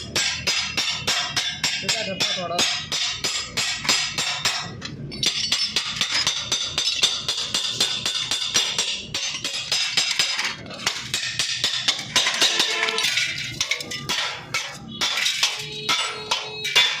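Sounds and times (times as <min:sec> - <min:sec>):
hammer on sheet metal: 0:00.0 - 0:17.0.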